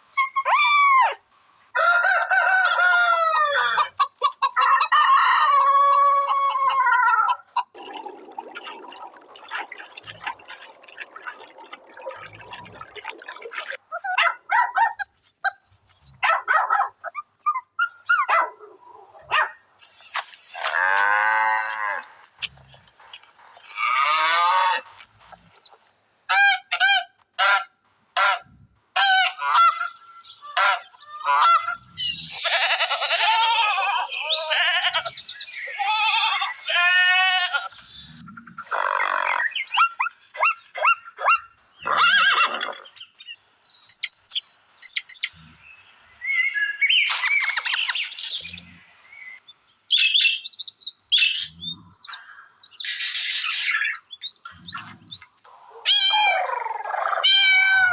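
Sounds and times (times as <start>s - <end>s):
fowl honking and cackling: 29.0s - 31.8s
chatter of many birds: 46.9s - 55.3s.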